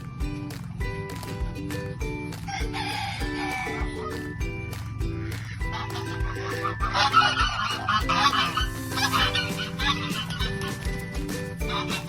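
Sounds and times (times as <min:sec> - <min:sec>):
background music with steady beat: 0:00.0 - 0:12.0
rooster crowing: 0:02.5 - 0:04.2, 0:06.9 - 0:10.7.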